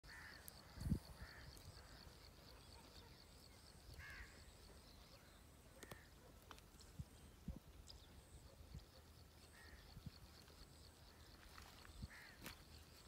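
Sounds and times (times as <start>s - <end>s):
caw-like bird calls: 0.1s - 2.2s, 3.9s - 4.5s, 9.4s - 10.0s, 11.1s - 12.7s.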